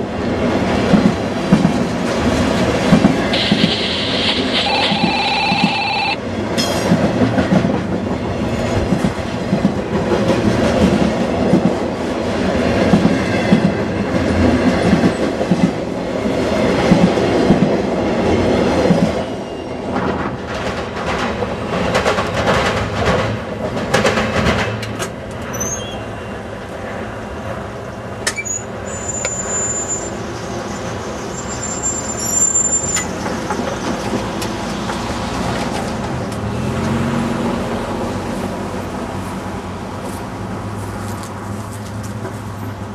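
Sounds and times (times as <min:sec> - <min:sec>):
high wheel squeal: 0:03.3 - 0:06.2, 0:25.5 - 0:26.2, 0:28.4 - 0:33.3
train wheels clattering over rails: 0:06.5 - 0:19.3, 0:19.9 - 0:25.6, 0:32.8 - 0:37.7.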